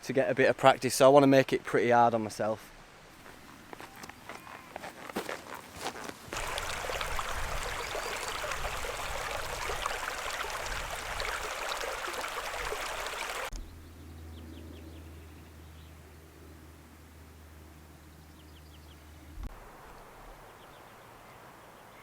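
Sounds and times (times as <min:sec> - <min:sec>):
stream water rushing: 0:02.7 - 0:13.5.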